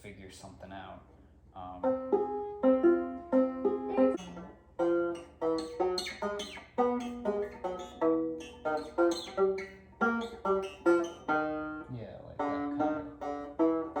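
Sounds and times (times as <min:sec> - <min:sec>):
banjo picking single notes: 0:01.6 - 0:14.0.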